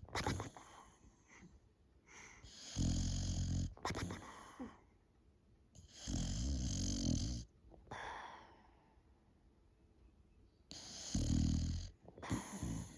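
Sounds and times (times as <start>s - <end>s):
dog snoring: 0.1s - 0.8s, 2.4s - 4.4s, 5.8s - 7.5s, 10.7s - 12.9s.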